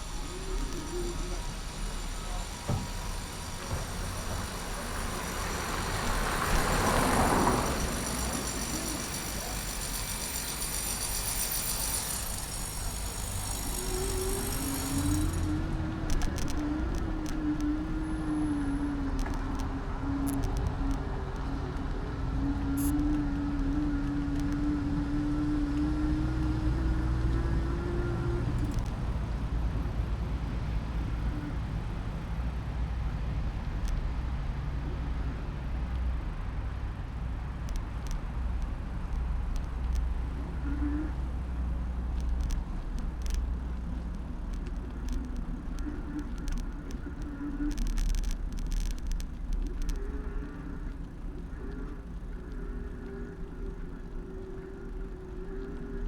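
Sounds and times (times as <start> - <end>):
road rumble: 0.0 - 56.0
sharp clicks and rattles: 4.0 - 17.7, 41.6 - 56.0.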